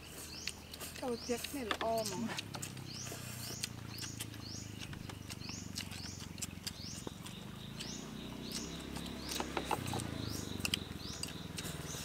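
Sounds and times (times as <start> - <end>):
chopsticks clicking: 3.6 - 11.4.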